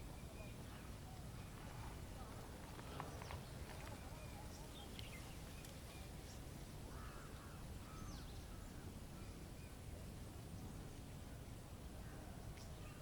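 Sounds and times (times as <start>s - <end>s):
faint bird calls: 0.0s - 9.8s.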